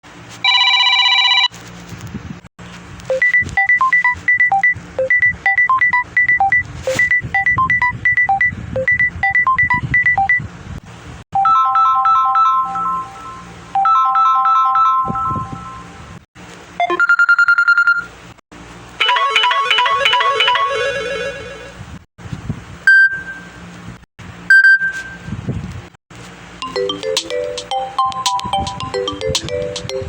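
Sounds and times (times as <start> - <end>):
chiming ringtone melody: 11.4 - 16.0, 19.0 - 21.0, 26.6 - 30.0
high plinking ringtone melody: 11.4 - 16.0, 19.0 - 20.9, 26.6 - 30.0.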